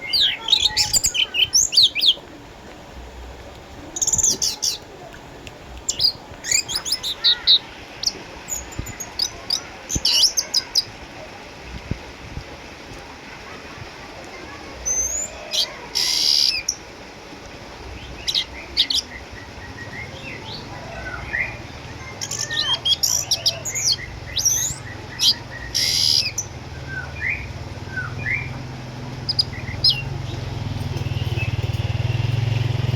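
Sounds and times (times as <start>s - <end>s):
thrush singing: 0.0s - 2.5s, 18.0s - 32.9s
low engine rumble: 0.0s - 10.1s, 10.8s - 32.9s.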